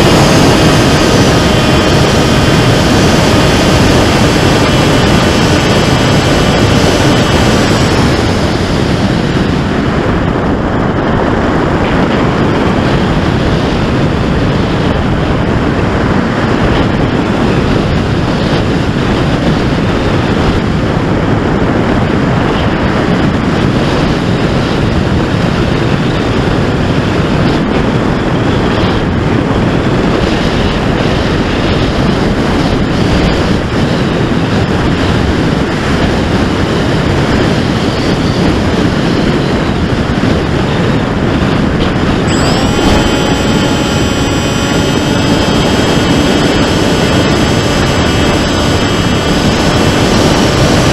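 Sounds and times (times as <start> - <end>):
electric motor whine: 0.0 - 20.4, 41.7 - 50.9
wind roaring over microphone: 0.0 - 50.9.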